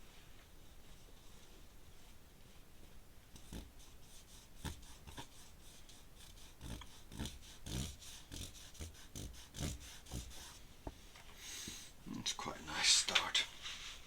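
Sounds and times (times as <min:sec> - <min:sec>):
pen scratching on paper: 0:03.4 - 0:10.6.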